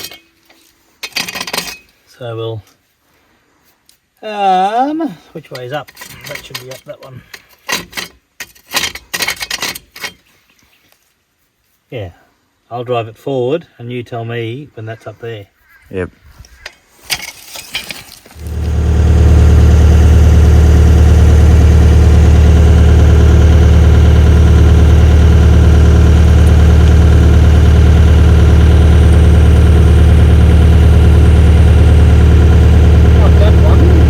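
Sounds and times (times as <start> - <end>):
excavator diesel engine droning: 18.4 - 34.0.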